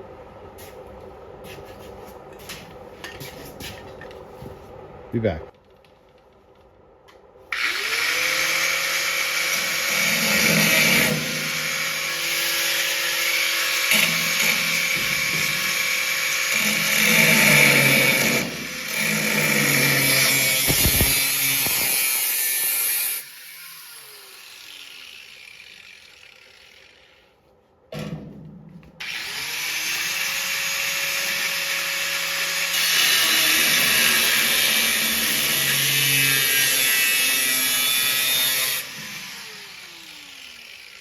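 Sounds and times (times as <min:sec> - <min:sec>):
angle grinder cutting steel: 0:07.5 - 0:27.4, 0:29.0 - 0:41.0
grinder winding down whine: 0:07.6 - 0:22.2, 0:23.2 - 0:27.4.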